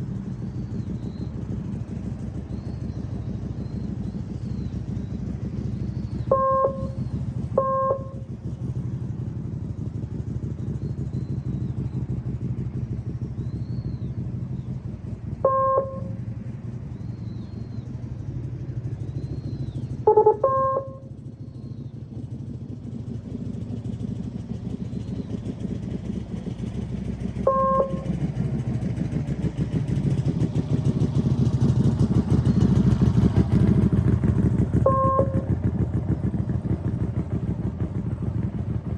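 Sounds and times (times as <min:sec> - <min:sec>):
motorcycle engine accelerating: 0:00.0 - 0:38.9
short electronic beeps: 0:06.3 - 0:07.0, 0:07.6 - 0:08.2, 0:15.4 - 0:16.2, 0:20.1 - 0:21.0, 0:27.5 - 0:28.1, 0:34.9 - 0:35.5.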